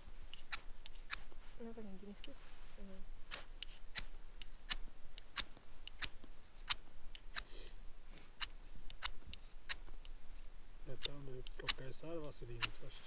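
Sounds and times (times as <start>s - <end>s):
scraper rasping on fire steel: 0.3s - 1.5s.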